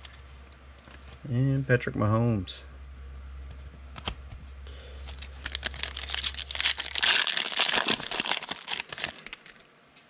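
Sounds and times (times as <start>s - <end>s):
foil wrapper crinkling and tearing: 5.0s - 9.7s.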